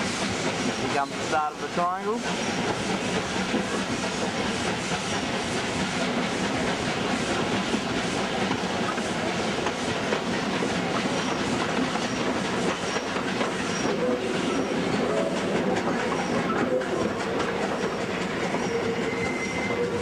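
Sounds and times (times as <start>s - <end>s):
train wheels clattering on rails: 0.0s - 20.0s
faint high squeaks: 17.8s - 20.0s.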